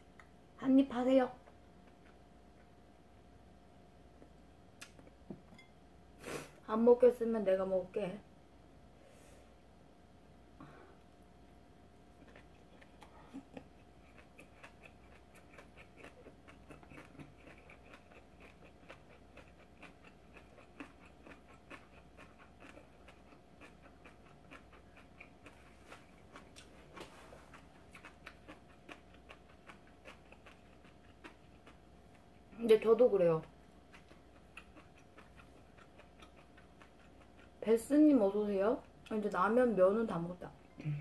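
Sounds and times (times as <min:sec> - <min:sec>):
close-miked chewing: 0:01.8 - 0:02.8, 0:12.0 - 0:32.6, 0:33.3 - 0:37.9.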